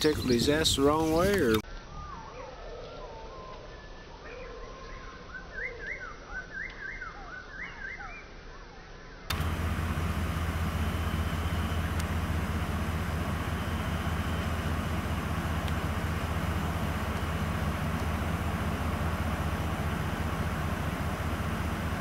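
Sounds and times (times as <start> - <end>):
vehicle engine idling: 9.3 - 22.0.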